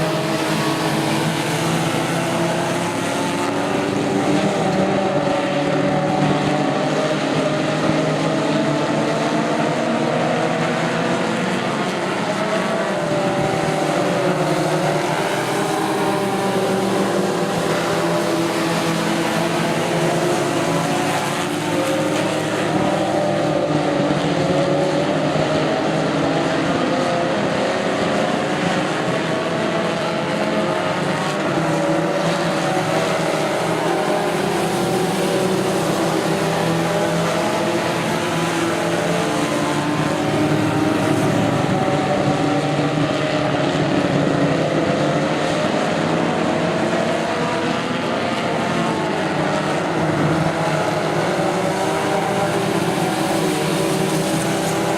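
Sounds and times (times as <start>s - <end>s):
truck engines revving: 0.0s - 54.9s.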